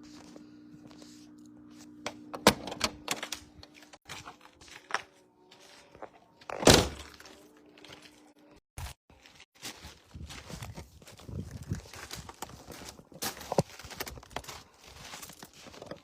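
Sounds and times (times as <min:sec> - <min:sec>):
steady low hum: 0:00.0 - 0:04.0.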